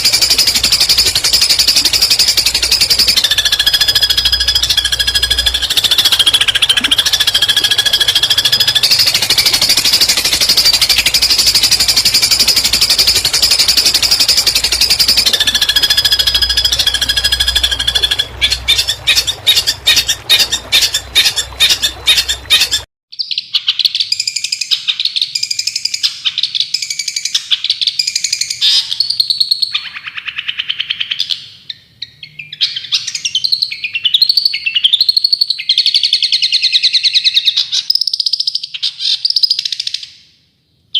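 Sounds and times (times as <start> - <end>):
buzzing bird trill: 0.0 - 22.9
bird chirps and whistles: 0.0 - 26.1
recorded songbird song: 0.0 - 40.9.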